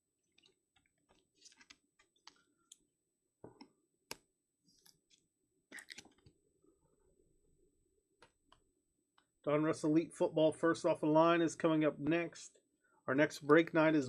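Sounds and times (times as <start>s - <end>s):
trading cards clicking and rustling: 1.1s - 2.4s.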